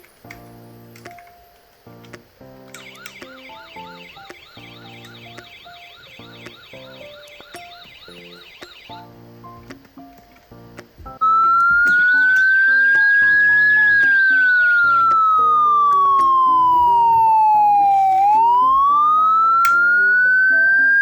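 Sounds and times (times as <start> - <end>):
background music: 0.0 - 21.0
police siren wailing: 2.9 - 8.9, 11.2 - 21.0.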